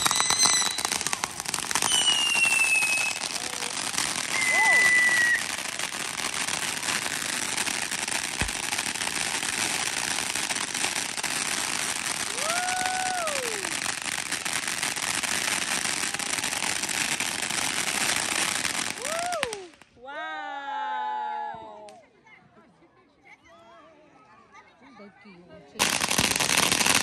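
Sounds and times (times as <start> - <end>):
fireworks crackling: 0.0 - 20.0, 25.8 - 27.0.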